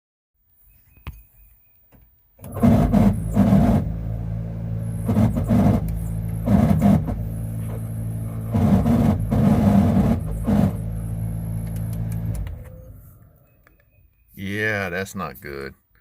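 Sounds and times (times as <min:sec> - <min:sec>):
engine starting and idling: 0:02.4 - 0:13.6
click: 0:11.6 - 0:12.8.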